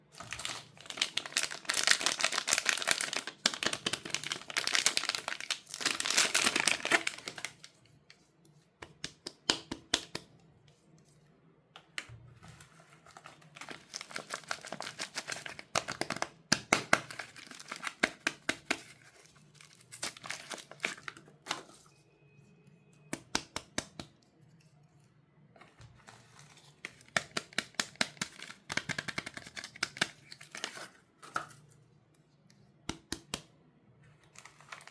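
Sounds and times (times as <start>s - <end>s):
soap wrappers crinkling and tearing: 0.2s - 8.2s, 12.8s - 21.8s, 26.4s - 31.4s, 34.2s - 34.9s.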